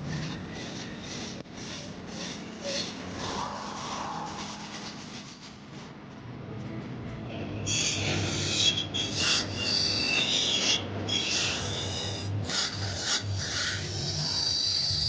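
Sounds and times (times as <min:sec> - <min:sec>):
rough filing strokes: 0:00.0 - 0:05.6.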